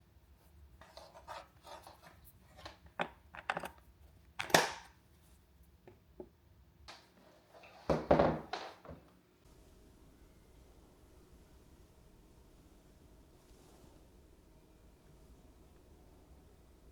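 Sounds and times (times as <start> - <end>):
handling clicks and scrapes: 0.8 - 3.8
faint steady hiss: 5.0 - 16.9.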